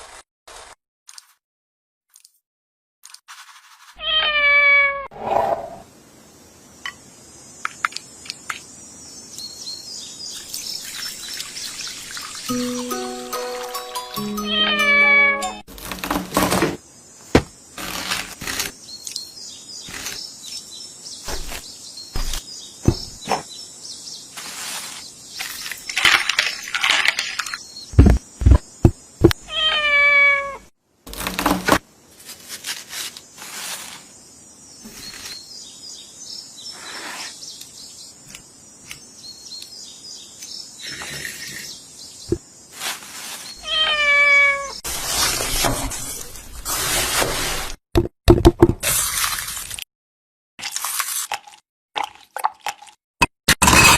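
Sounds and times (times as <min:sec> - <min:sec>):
cat meowing: 0:29.5 - 0:30.6, 0:43.6 - 0:44.8.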